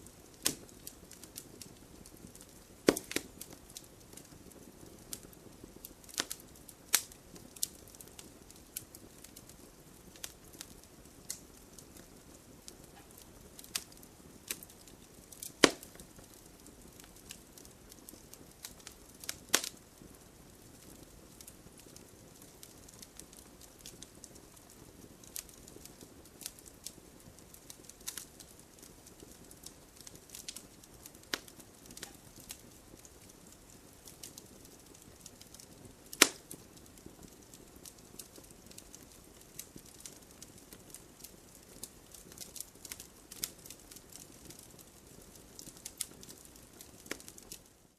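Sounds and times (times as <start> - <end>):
sharp pops from fire: 0.0 - 47.7
wood fire crackling: 0.0 - 47.9.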